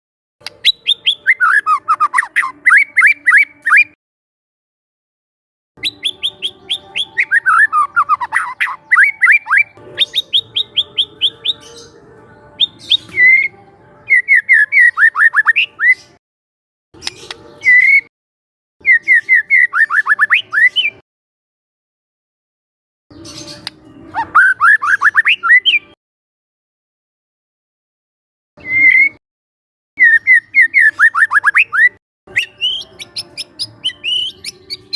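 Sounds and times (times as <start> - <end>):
bird singing chirps and whistles: 0.4 - 4.0, 5.8 - 11.9, 12.6 - 16.2, 17.0 - 18.1, 18.8 - 21.0, 23.1 - 26.0, 28.6 - 29.2, 30.0 - 34.9.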